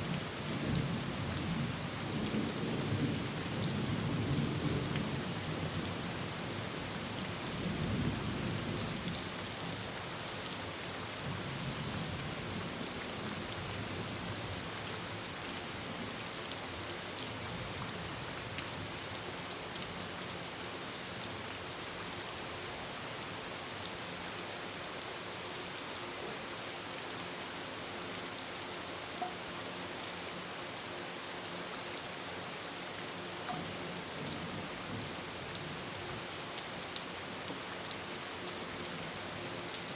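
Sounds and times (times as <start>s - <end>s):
heavy rain on a tin roof: 0.0s - 39.9s
low rumble of thunder: 0.1s - 9.2s
raindrops ticking: 33.4s - 33.9s.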